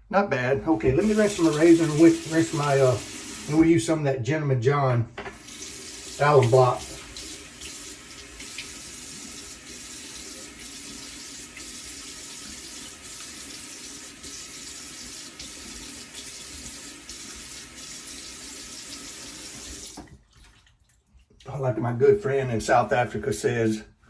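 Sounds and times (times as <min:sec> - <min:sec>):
razor rinsed under water: 0:00.6 - 0:03.8, 0:05.3 - 0:20.5
tap running into sink: 0:05.2 - 0:08.8.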